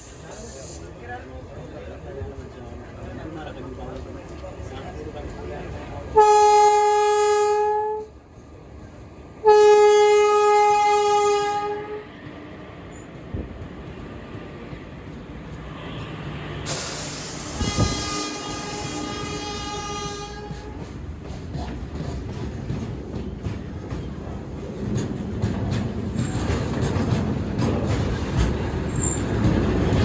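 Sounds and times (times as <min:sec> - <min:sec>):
train rolling past: 0:00.0 - 0:30.0
train horn blasts: 0:06.2 - 0:08.2, 0:09.4 - 0:12.1, 0:17.3 - 0:20.8.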